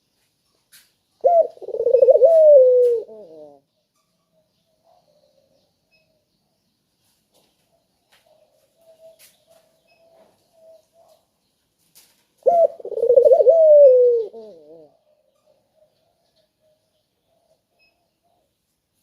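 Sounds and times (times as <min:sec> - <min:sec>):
dove cooing: 0:01.2 - 0:03.7, 0:12.4 - 0:17.6.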